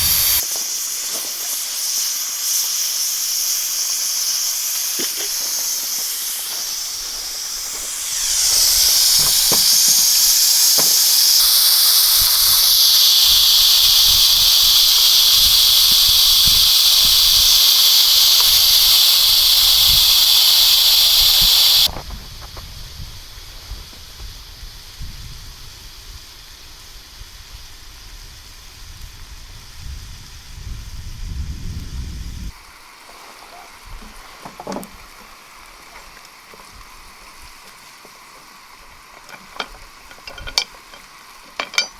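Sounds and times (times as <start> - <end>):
pressure cooker steam hissing: 0.0 - 28.4, 38.5 - 41.9.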